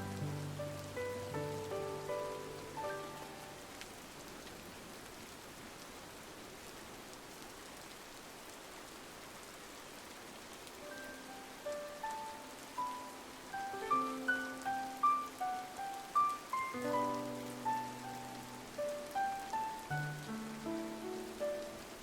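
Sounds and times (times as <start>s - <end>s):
soft music notes: 0.0s - 3.7s, 10.8s - 22.0s
rain pattering on a window: 0.0s - 22.0s.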